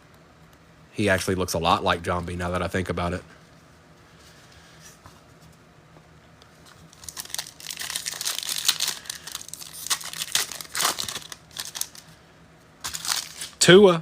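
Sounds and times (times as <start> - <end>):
foil wrapper crinkling: 6.7 - 12.1, 12.8 - 13.6.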